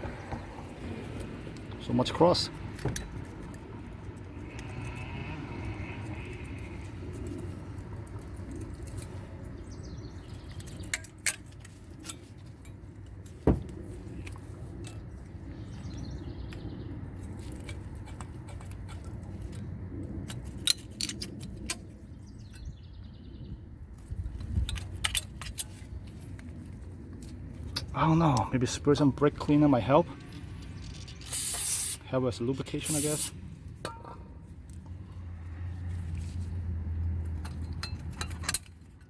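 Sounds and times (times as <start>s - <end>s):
metallic tool clicks and clinks: 37.3s - 39.0s.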